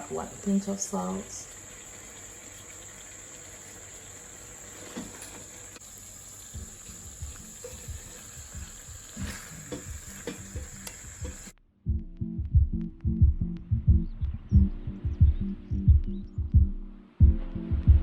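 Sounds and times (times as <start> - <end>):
stew simmering and sizzling: 0.0 - 11.5
faint background music: 6.5 - 18.0.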